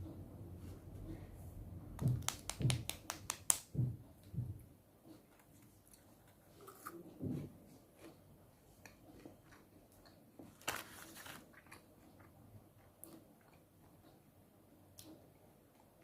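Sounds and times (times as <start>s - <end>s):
packaging rustling and clicking: 10.5s - 11.5s.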